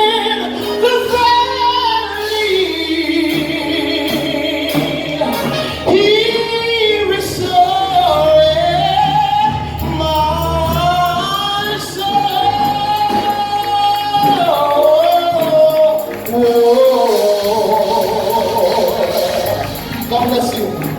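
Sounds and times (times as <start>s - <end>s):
instrumental backing: 0.0s - 20.9s
solo voice singing gospel: 0.0s - 20.9s.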